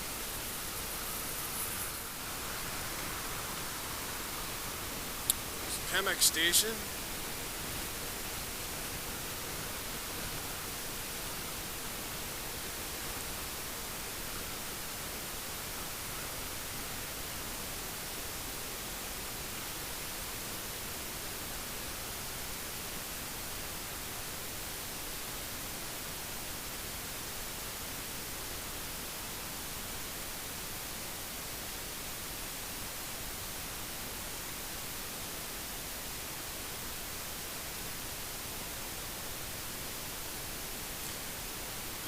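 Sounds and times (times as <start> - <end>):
wind hiss over helmet microphone: 0.0 - 20.7.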